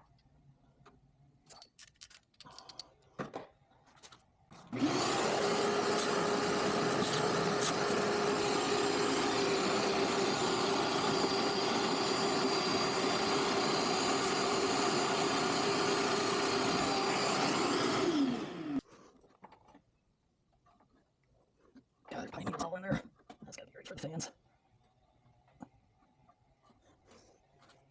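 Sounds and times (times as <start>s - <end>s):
motor whining: 4.7s - 18.8s.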